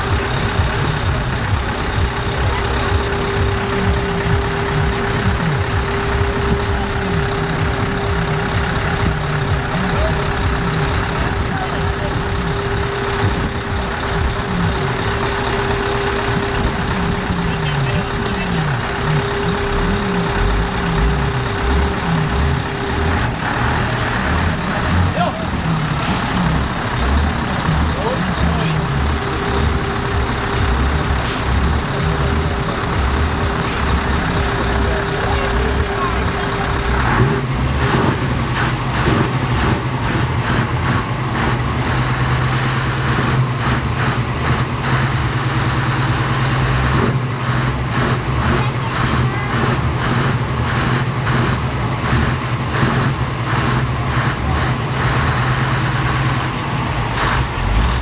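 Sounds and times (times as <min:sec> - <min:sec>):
truck engine rumbling: 0:00.0 - 0:58.0
air brakes hissing: 0:22.2 - 0:23.4, 0:31.1 - 0:31.6, 0:42.4 - 0:43.2.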